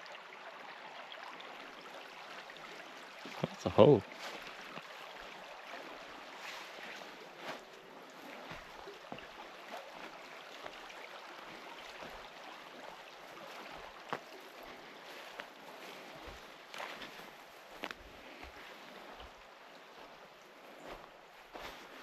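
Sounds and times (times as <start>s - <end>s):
river water hissing: 1.2s - 22.0s.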